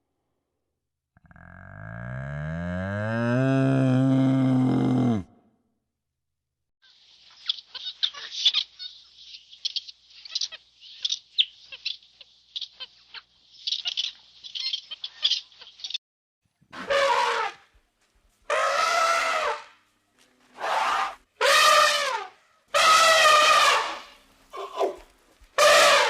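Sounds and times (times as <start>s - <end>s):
high bird chirps: 7.1s - 16.0s.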